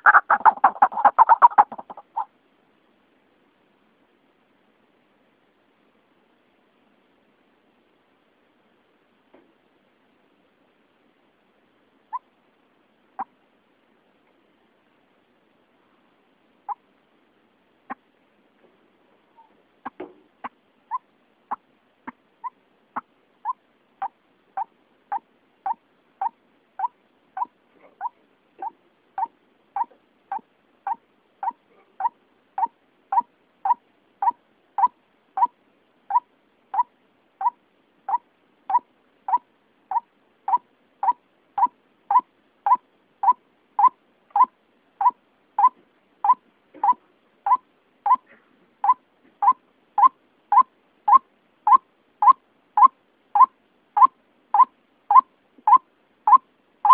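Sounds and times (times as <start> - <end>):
waterhen calling: 0.0 - 2.3, 38.1 - 56.9.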